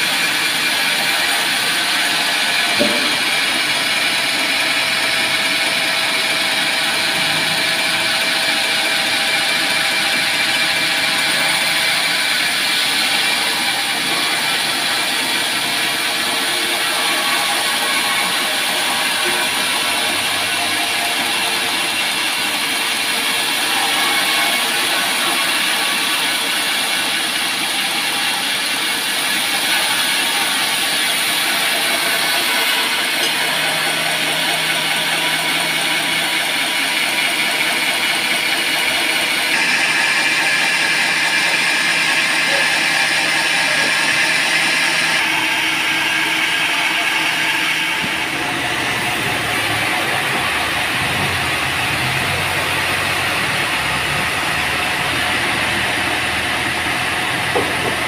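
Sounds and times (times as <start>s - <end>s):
band saw cutting log: 0.0s - 58.0s
sawmill machine drone: 0.0s - 58.0s
deeper drone: 42.1s - 58.0s.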